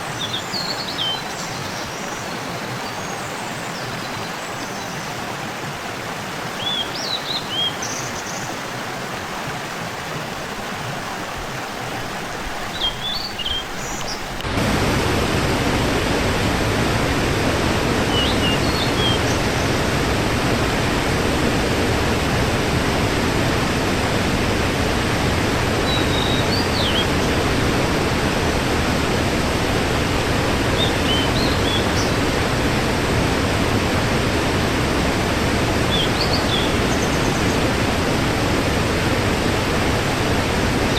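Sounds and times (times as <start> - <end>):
waterfall rushing: 0.0 - 40.9
whistled bird chirps: 6.6 - 8.4, 12.7 - 14.2, 18.1 - 19.2, 25.9 - 27.1.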